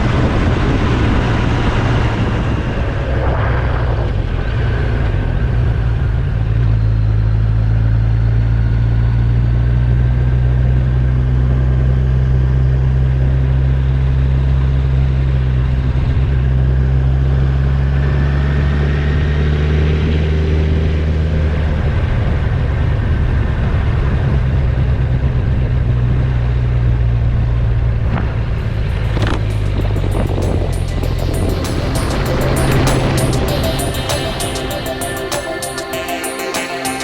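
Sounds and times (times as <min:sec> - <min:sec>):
wind noise: 0:00.0 - 0:06.6, 0:27.8 - 0:35.5
motorcycle engine cruising: 0:27.2 - 0:37.0.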